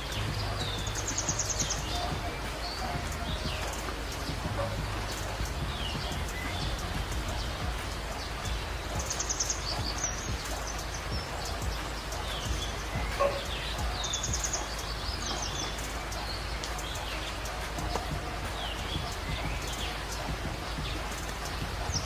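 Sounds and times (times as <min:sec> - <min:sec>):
small birds chirping: 0:00.0 - 0:22.0
steady low rumble: 0:00.0 - 0:22.0.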